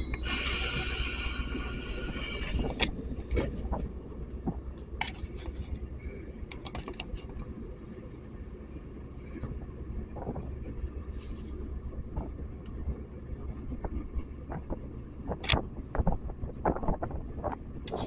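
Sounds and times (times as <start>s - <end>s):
steady low rumble: 0.0s - 18.0s
sharp clicks and knocks: 6.5s - 7.5s, 13.7s - 18.0s.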